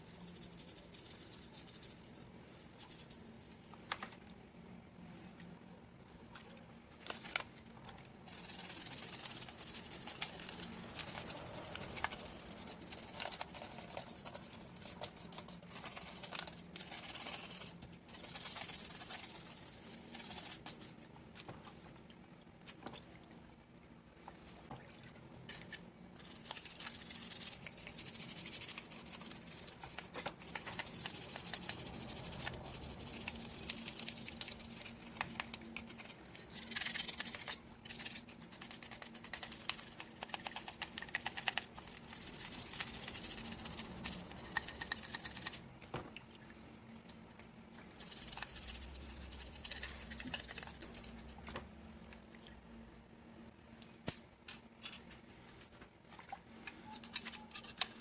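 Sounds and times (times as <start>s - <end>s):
small brush scrubbing: 0.0s - 3.9s, 8.2s - 21.8s, 26.2s - 45.6s, 47.7s - 51.4s.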